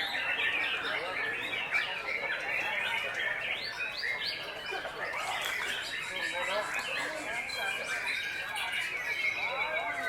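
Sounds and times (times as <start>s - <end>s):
birds singing whistles and chatter: 0.0s - 10.0s.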